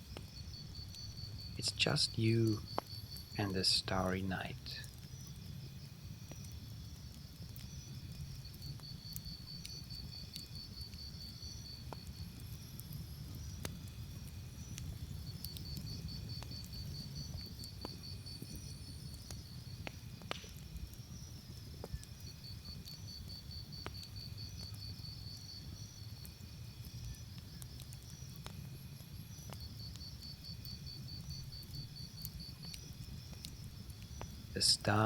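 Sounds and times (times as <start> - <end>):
campfire crackling: 0.0 - 35.0
crickets trilling: 0.0 - 35.0
sharp pops: 20.2 - 20.6.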